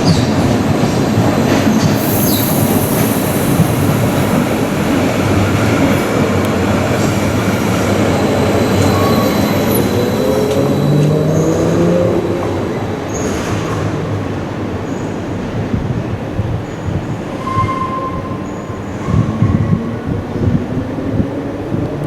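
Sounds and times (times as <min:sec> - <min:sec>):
train rumbling on rails: 0:00.0 - 0:22.0
rising whine: 0:02.0 - 0:07.6.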